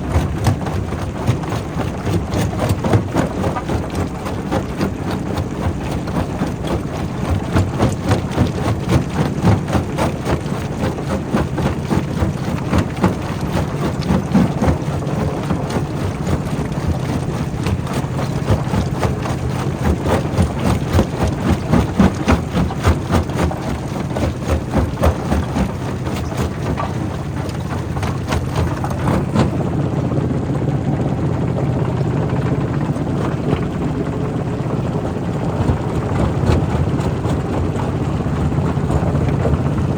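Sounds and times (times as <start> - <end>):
rock crusher machine hum: 0.0 - 29.9.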